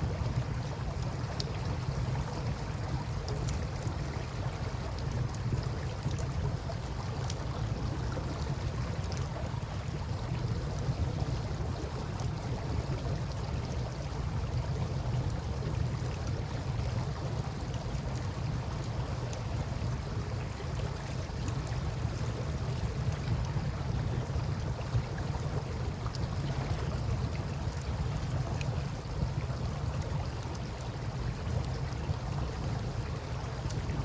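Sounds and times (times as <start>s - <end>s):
river water flowing: 0.0s - 34.0s.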